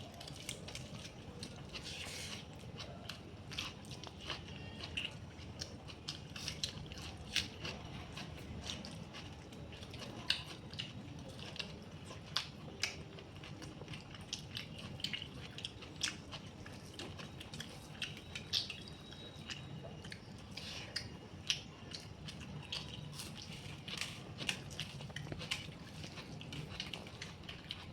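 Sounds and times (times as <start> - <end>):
person chewing food: 0.0 - 27.9.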